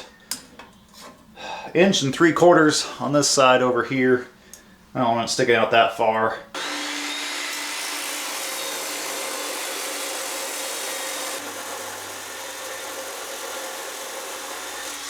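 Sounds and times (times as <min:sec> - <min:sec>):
power tool cutting steel: 0:06.6 - 0:15.0.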